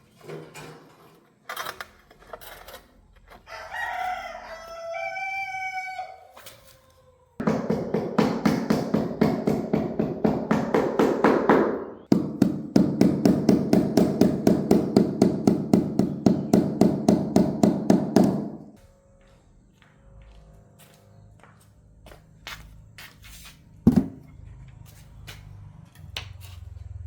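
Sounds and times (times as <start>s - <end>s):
rapid hammer strikes: 7.4s - 18.7s.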